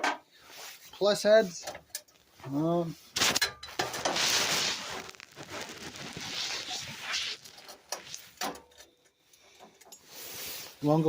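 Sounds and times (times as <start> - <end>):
rustling and scraping: 2.0 - 8.9.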